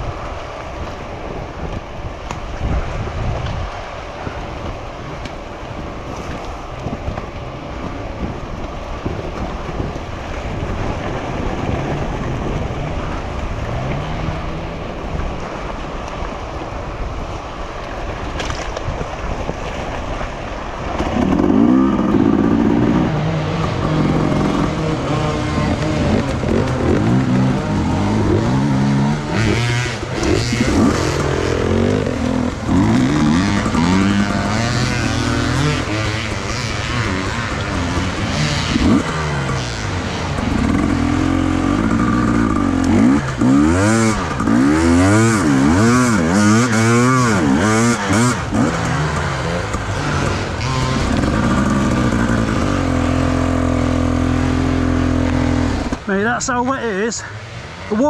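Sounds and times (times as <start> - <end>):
motorcycle engine revving: 21.0 - 58.0.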